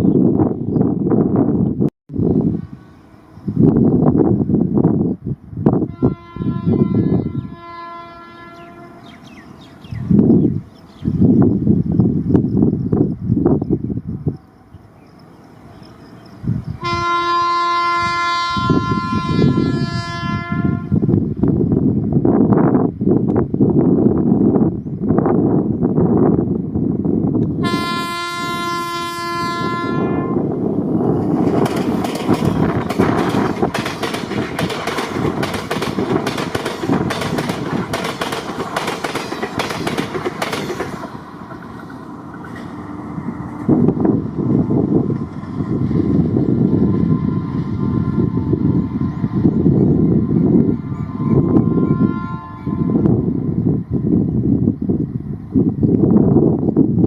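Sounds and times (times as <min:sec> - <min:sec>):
train rumble and wheel clatter: 0:00.0 - 0:57.0
train horn blast: 0:05.8 - 0:09.4, 0:16.8 - 0:21.1, 0:27.6 - 0:30.6, 0:46.6 - 0:53.6
train wheels rumbling and clattering: 0:30.5 - 0:51.8.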